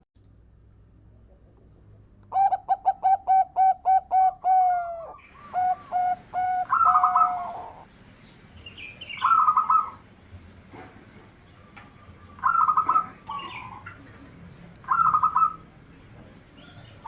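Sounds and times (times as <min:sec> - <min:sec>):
bird trilling: 0:02.3 - 0:07.9, 0:08.6 - 0:10.0, 0:12.1 - 0:14.0, 0:14.8 - 0:15.7
dove cooing: 0:02.3 - 0:07.9, 0:09.1 - 0:10.0, 0:11.9 - 0:14.1, 0:14.8 - 0:15.7.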